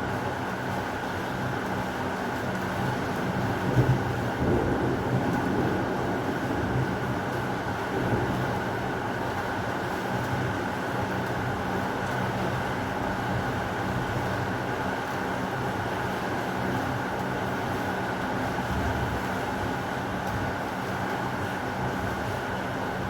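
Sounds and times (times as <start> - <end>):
heavy rain falling: 2.3 - 12.6.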